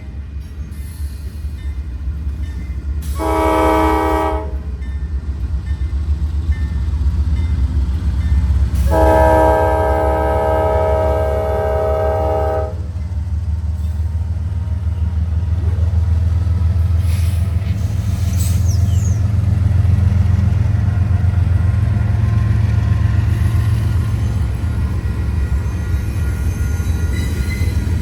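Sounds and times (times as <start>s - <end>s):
train rumbling past: 0.0s - 28.0s
locomotive air horn: 3.1s - 4.7s, 8.8s - 12.8s.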